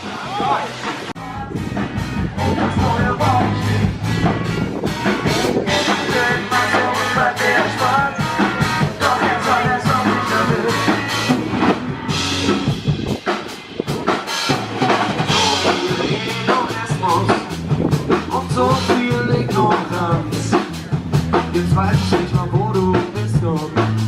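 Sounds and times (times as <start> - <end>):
person singing: 0.0 - 4.2, 4.9 - 11.4, 15.2 - 20.8
drum kit beating: 0.0 - 24.0
loud band music: 0.0 - 24.0.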